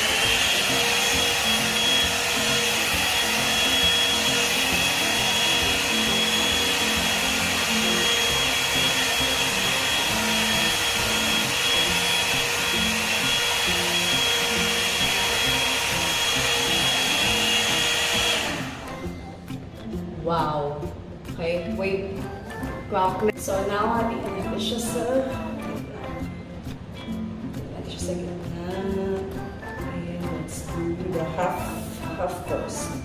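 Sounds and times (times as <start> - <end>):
hair dryer blowing with whine: 0.0 - 19.1.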